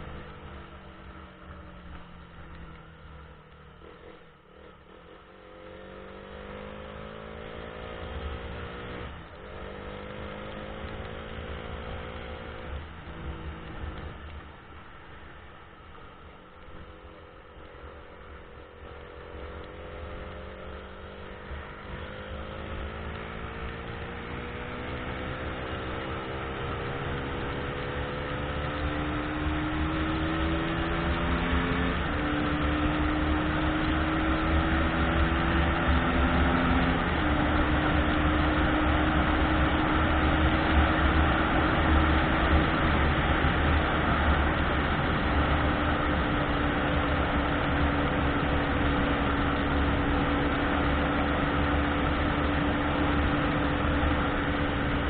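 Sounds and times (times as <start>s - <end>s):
car engine hum rising in pitch: 0.0s - 55.0s
low road rumble: 0.0s - 55.0s.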